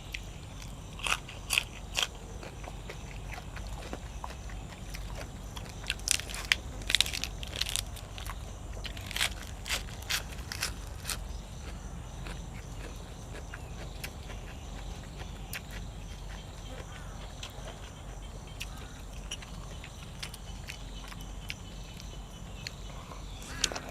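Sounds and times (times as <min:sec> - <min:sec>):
mouth chewing and crunching food: 0:00.0 - 0:23.9
crisp bites: 0:05.7 - 0:11.2.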